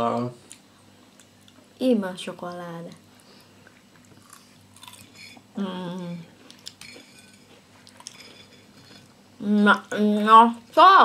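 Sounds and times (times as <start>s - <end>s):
quiet chewing: 2.9s - 9.2s.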